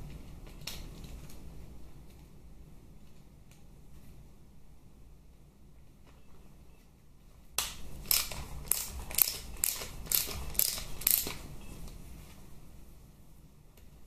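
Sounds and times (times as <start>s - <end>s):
hand ratchet clicking: 8.0s - 11.4s.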